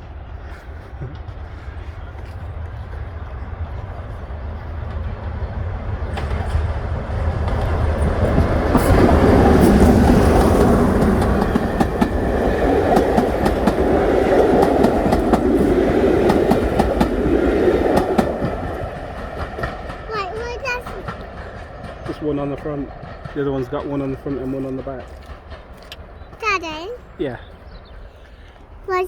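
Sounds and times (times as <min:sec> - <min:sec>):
diesel locomotive engine rumble: 0:00.0 - 0:29.0
train wheels clicking over rail joints: 0:06.0 - 0:27.0.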